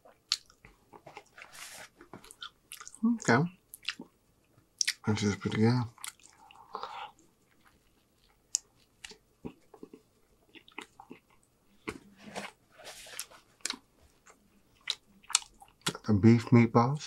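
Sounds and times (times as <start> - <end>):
crunchy chewing of bread: 4.8 - 16.0.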